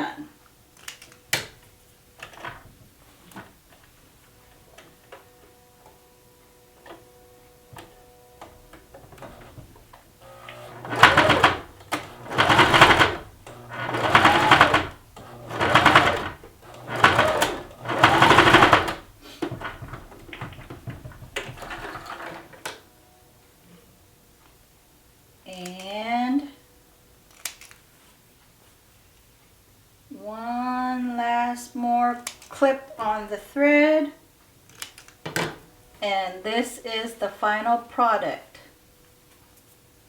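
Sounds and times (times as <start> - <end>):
sewing machine stitching fabric: 9.0 - 22.7.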